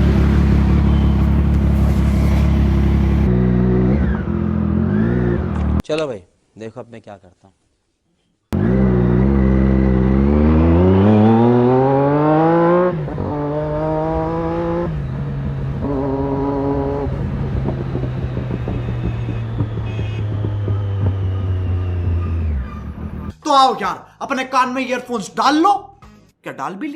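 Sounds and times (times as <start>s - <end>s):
motorcycle engine revving and idling: 0.0s - 5.8s, 8.6s - 23.3s.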